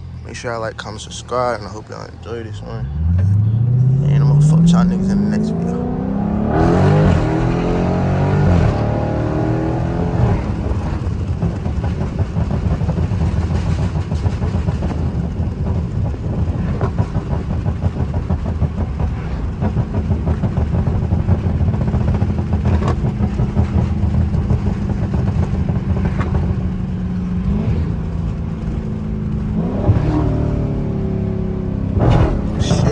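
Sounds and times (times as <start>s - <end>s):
car engine revving: 0.0s - 32.9s
exhaust pops: 6.7s - 30.7s, 31.9s - 32.9s.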